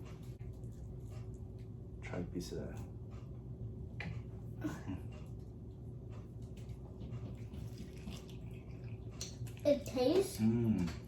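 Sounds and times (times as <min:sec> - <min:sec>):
steady low hum: 0:00.0 - 0:11.0
chewing and mouth clicks: 0:07.4 - 0:10.3.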